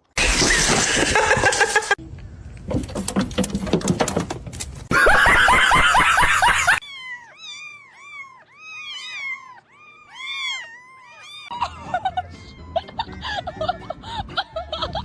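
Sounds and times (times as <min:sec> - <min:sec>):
harsh burst of noise: 0:00.2 - 0:02.0
cat meowing: 0:06.8 - 0:11.5.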